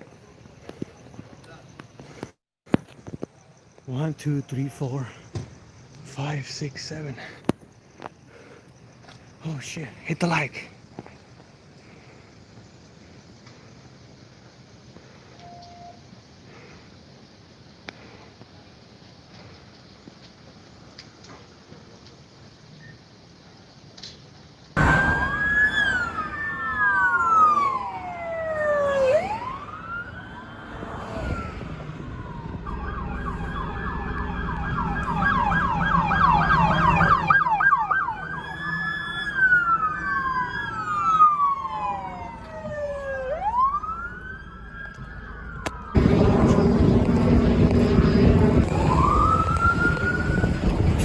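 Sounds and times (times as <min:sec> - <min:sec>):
vehicle and road noise: 0:24.2 - 0:51.0
police car siren: 0:24.8 - 0:51.0.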